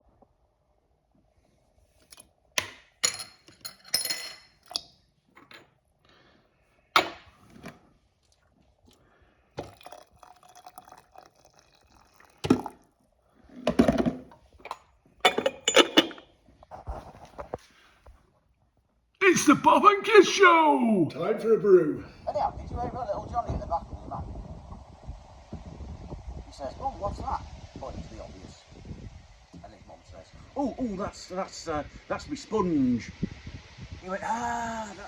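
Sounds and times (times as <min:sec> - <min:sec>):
crockery clinking: 0:02.6 - 0:05.6, 0:13.7 - 0:16.3
liquid being poured: 0:09.6 - 0:13.0.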